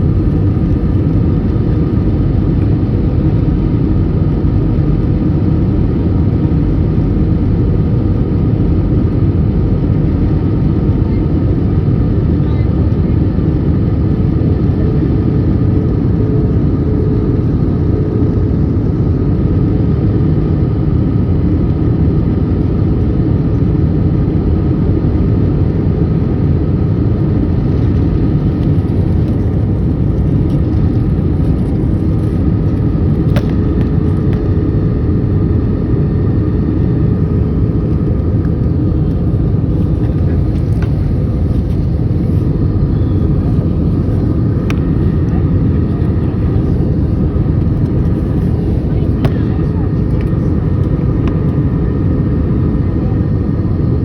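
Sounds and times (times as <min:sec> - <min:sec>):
jet engine cabin rumble: 0:00.0 - 0:54.0.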